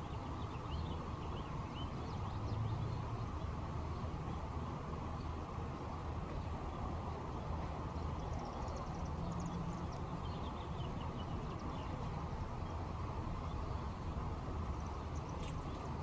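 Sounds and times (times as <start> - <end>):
small birds chirping: 0.0 - 4.5, 7.8 - 16.0
low outdoor background noise: 0.0 - 16.0.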